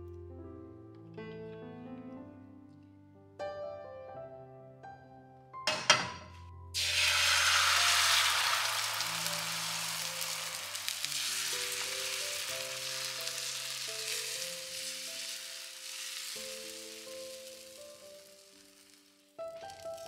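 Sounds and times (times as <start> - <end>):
soft background music: 0.0 - 7.7, 8.8 - 20.0
food sizzling in a pan: 6.8 - 20.0.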